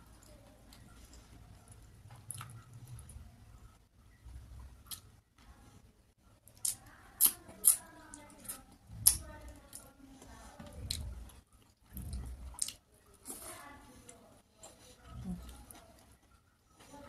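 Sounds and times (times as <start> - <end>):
wet chewing: 6.5 - 17.0.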